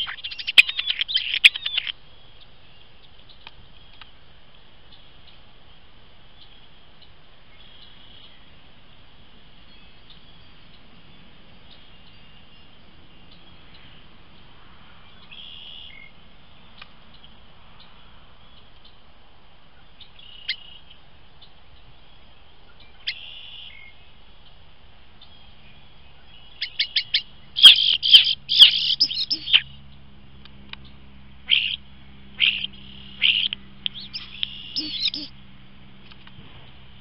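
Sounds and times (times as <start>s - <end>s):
bird calling close to microphone: 0.0s - 2.0s, 26.2s - 29.8s, 31.4s - 31.8s, 32.4s - 35.4s.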